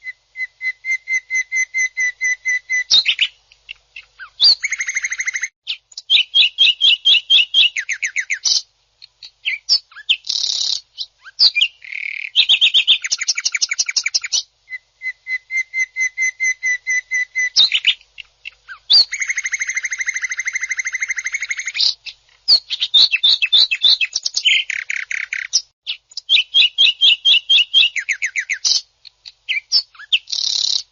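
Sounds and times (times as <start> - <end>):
bird singing harsh trills: 9.4 - 30.9.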